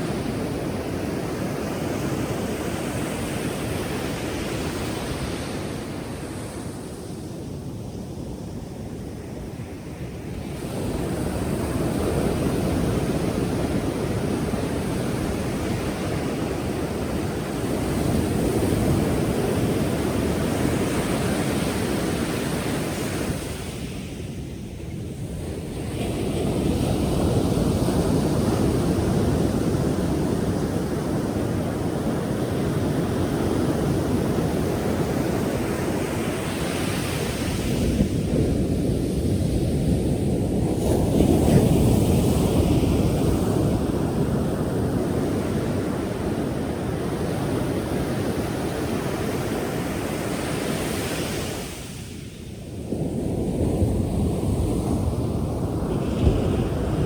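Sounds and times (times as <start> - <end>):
wind buffeting microphone: 0.0 - 57.0
waves breaking: 25.4 - 57.0.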